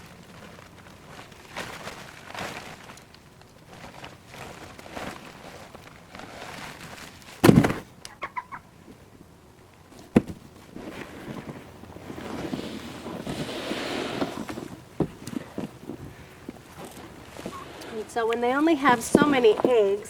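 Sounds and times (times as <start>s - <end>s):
rustling and scraping: 0.0s - 8.2s, 9.8s - 20.0s
heavy thump: 7.4s - 7.9s, 10.1s - 10.4s, 15.0s - 15.2s.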